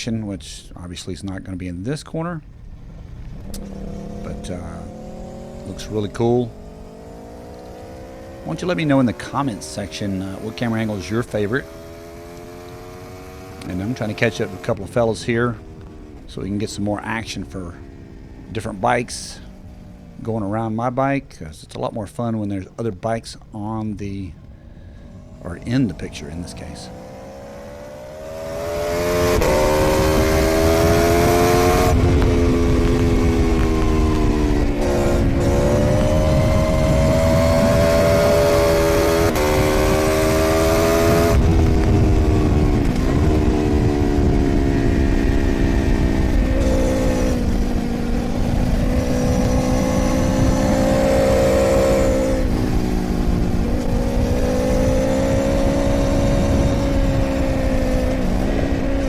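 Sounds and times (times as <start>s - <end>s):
motorcycle engine accelerating: 2.4s - 22.0s, 23.5s - 59.0s
wind noise: 24.0s - 59.0s.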